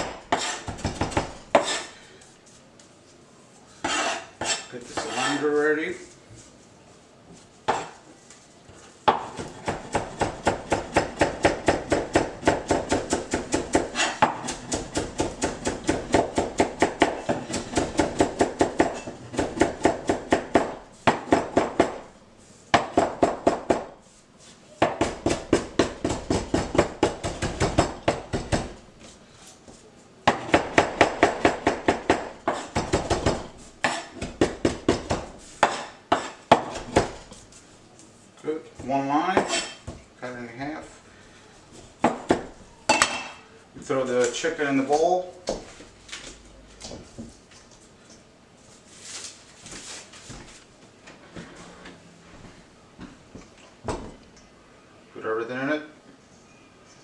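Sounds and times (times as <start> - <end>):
knife chopping on cutting board: 0.0 - 1.9, 30.3 - 37.2.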